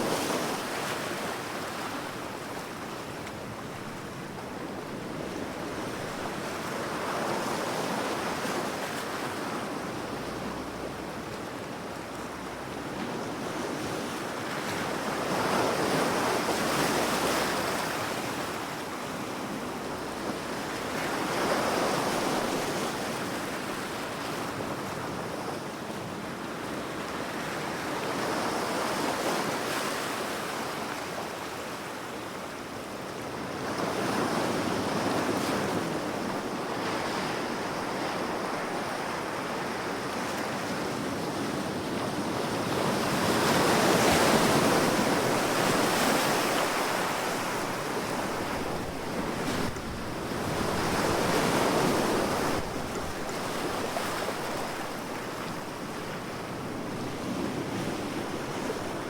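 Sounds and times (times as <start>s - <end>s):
ocean waves breaking on shore: 0.0s - 59.0s.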